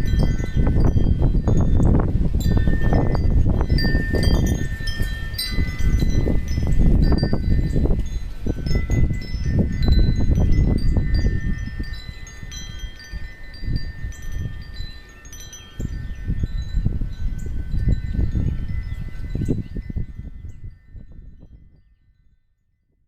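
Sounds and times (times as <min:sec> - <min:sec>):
metal wind chimes ringing: 0:00.0 - 0:22.4
wind rumble on microphone: 0:00.0 - 0:23.0.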